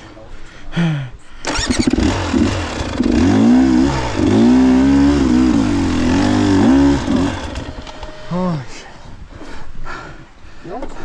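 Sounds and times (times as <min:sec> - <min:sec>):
dirt bike engine revving: 0:01.4 - 0:08.6.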